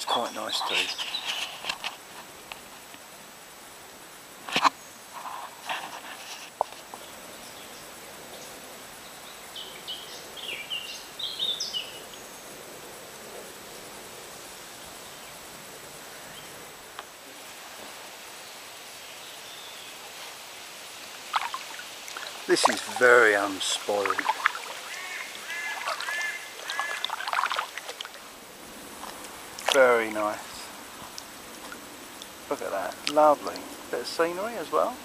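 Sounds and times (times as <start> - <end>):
river hush: 0.0 - 35.0
soft knocks and splashes: 21.3 - 28.2, 29.0 - 29.9.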